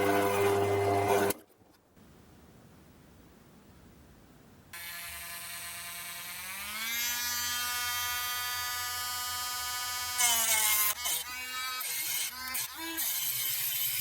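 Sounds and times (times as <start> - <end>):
small electric motor running: 4.8 - 14.0.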